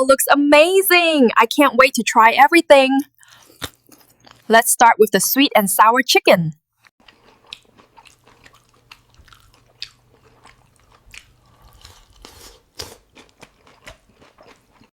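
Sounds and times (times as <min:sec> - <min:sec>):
person crunching crunchy food: 0:03.2 - 0:04.5, 0:06.9 - 0:14.9.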